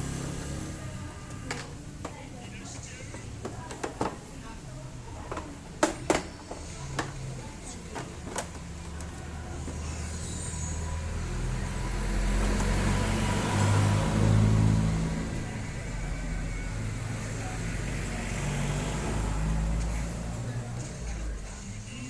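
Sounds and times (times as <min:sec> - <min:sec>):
vehicle engine passing by: 0:00.0 - 0:01.2, 0:08.7 - 0:22.0
steady low engine hum: 0:00.0 - 0:03.6, 0:06.4 - 0:22.0.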